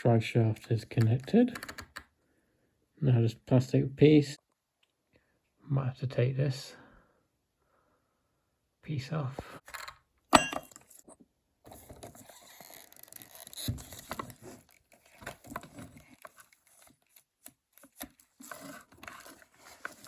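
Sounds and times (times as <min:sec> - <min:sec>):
plastic parts clicking and scraping: 0:11.7 - 0:20.0.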